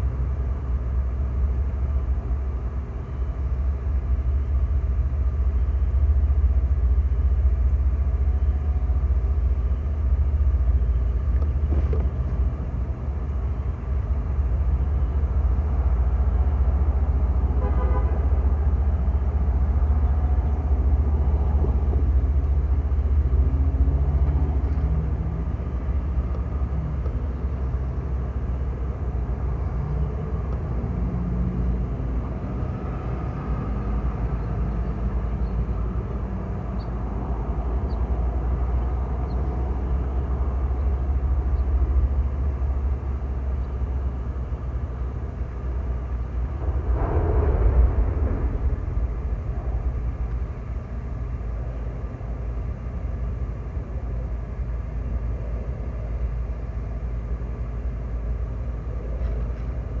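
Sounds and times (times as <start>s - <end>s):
diesel locomotive engines rumbling: 0.0s - 60.0s
train horn toot: 17.4s - 19.2s.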